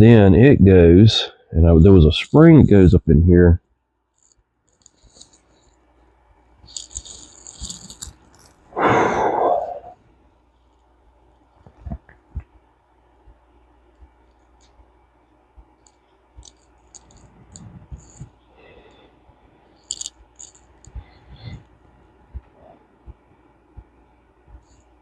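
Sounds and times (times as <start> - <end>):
metal reel parts clicking: 4.1 - 5.7, 6.6 - 8.6, 15.8 - 18.3, 19.8 - 21.0.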